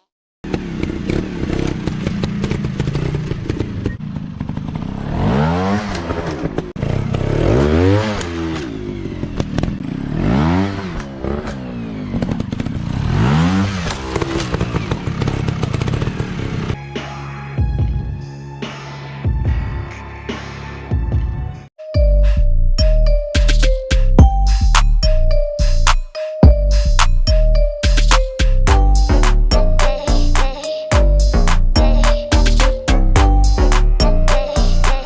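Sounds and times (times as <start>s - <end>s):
dirt bike engine revving: 0.4s - 16.8s.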